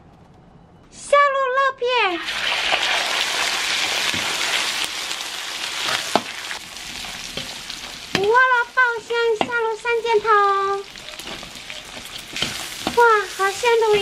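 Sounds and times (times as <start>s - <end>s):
pork sizzling in hot oil: 2.2s - 14.0s.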